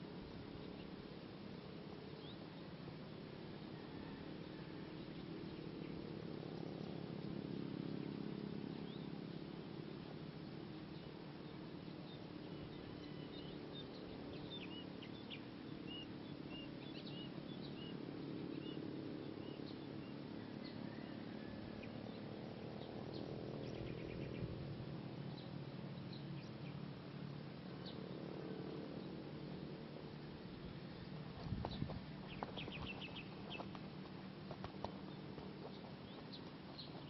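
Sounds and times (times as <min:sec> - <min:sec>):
steady low hum: 0:00.0 - 0:37.0
small birds chirping: 0:03.8 - 0:21.2, 0:21.8 - 0:37.0.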